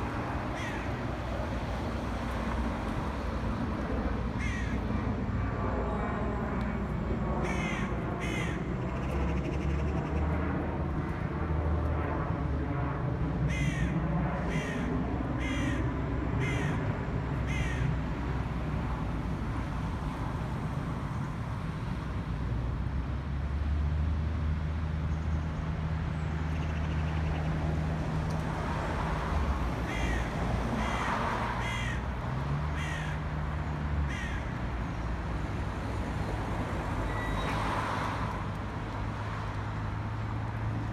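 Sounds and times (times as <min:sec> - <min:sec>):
low rumble of traffic: 0:00.0 - 0:40.9
crows cawing: 0:00.5 - 0:01.1, 0:04.4 - 0:04.9, 0:07.4 - 0:10.2, 0:13.5 - 0:16.8, 0:17.4 - 0:18.0, 0:29.8 - 0:35.0.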